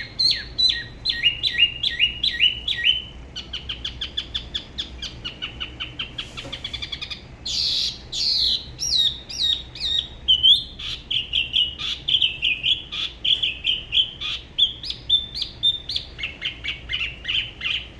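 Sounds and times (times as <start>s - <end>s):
bird singing: 0.0s - 17.9s.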